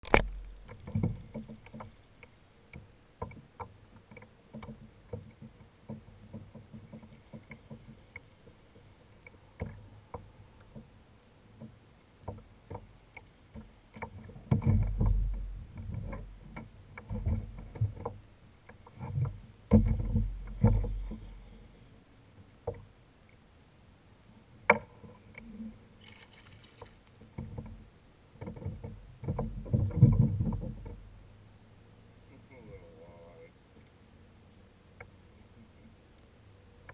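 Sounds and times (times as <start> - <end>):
light knocks and clicks: 0.0 - 10.9, 11.6 - 21.3, 28.4 - 31.0
low rumbling: 19.2 - 22.2.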